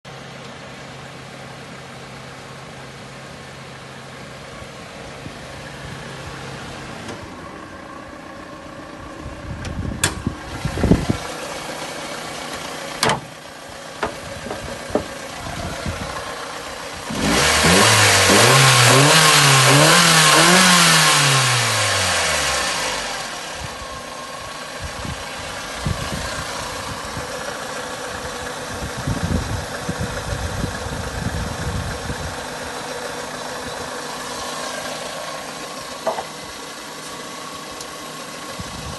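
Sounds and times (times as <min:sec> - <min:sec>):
car engine idling and revving: 0:00.1 - 0:38.9
sharp engine knocks: 0:13.0 - 0:13.3, 0:14.0 - 0:15.2, 0:36.0 - 0:36.4.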